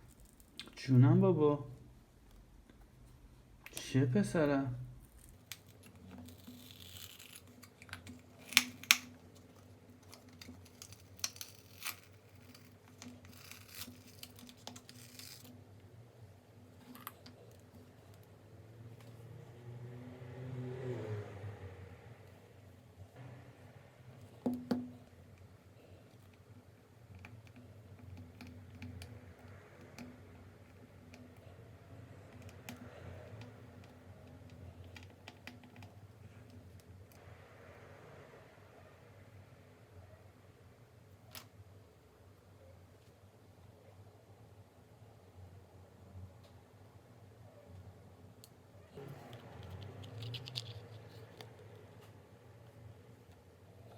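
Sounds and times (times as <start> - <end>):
small parts scraping and rustling: 5.0 - 15.6, 49.0 - 52.8.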